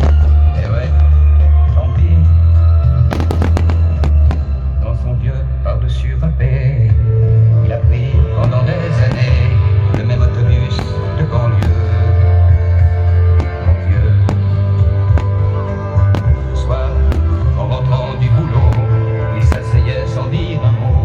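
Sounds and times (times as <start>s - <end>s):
loud music with heavy bass: 0.0s - 21.0s
firework bangs and pops: 3.1s - 4.7s, 8.4s - 20.1s.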